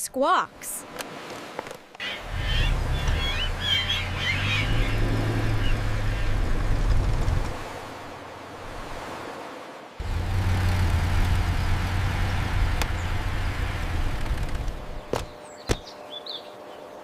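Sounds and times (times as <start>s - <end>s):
van engine humming: 2.0s - 7.9s, 10.0s - 15.3s.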